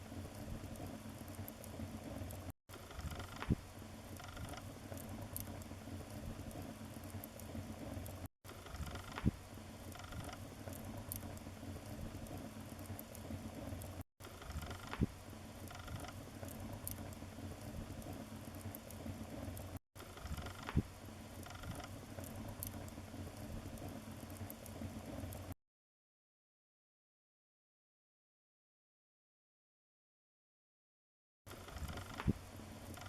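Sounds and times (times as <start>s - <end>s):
wood fire crackling: 0.0s - 25.6s
burning wood popping: 0.1s - 25.5s.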